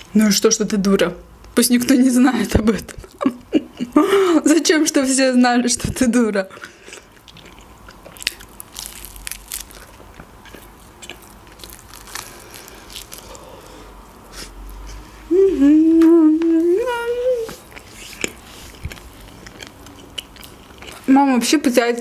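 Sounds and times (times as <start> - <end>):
chewing pizza crunches: 6.7 - 13.8, 17.5 - 21.1
closed-mouth mmm hum: 12.3 - 19.1.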